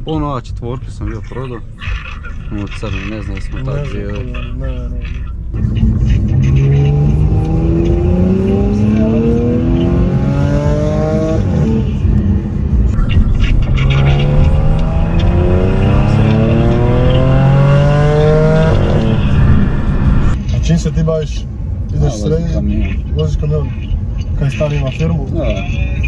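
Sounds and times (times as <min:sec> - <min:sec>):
car engine accelerating hard: 0:05.5 - 0:23.0.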